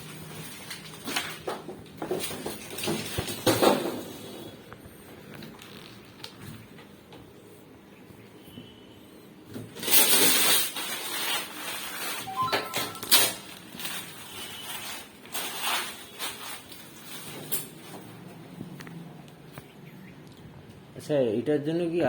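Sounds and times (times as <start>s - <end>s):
packaging rustling and crinkling: 0.0s - 3.8s, 5.1s - 6.6s, 9.7s - 18.5s.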